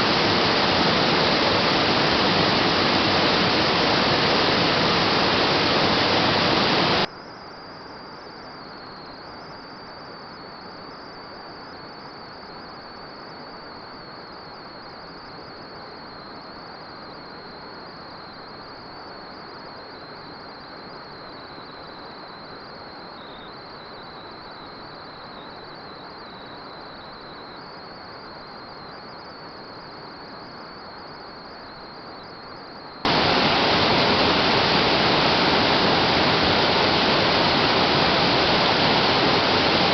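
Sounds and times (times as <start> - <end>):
rushing water: 0.0 - 7.1, 33.1 - 39.9
steady hiss: 0.0 - 7.1, 33.1 - 39.9
insects trilling: 0.0 - 39.9.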